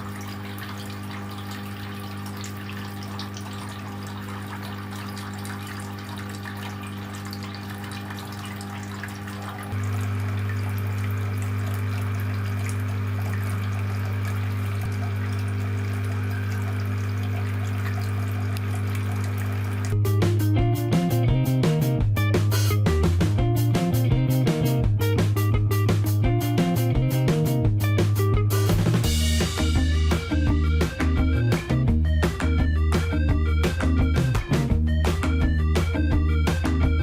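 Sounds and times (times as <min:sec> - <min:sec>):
fountain water trickling: 0:00.0 - 0:20.0
water pump humming: 0:00.0 - 0:37.0.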